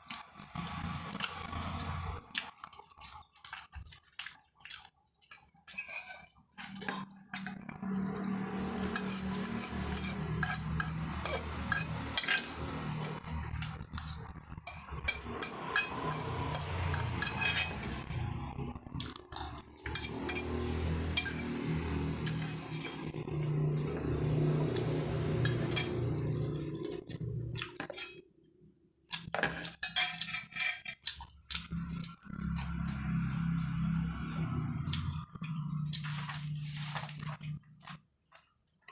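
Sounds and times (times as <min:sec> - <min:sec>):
cutlery clinking on a plate: 0:19.8 - 0:20.6, 0:29.2 - 0:31.2.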